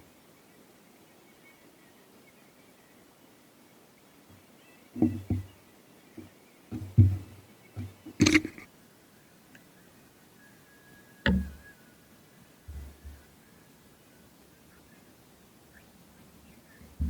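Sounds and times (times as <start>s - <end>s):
objects knocked and set down: 7.8s - 8.6s.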